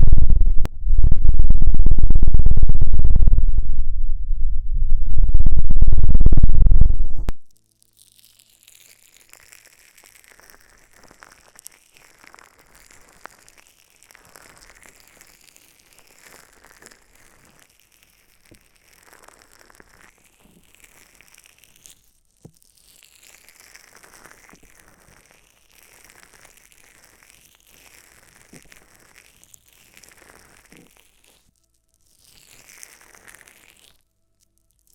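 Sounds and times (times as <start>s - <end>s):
soft crinkling and rustling: 7.3s - 34.9s.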